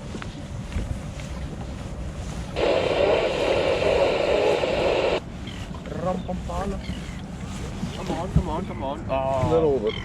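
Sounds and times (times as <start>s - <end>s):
loud steady rushing noise: 2.6s - 5.2s.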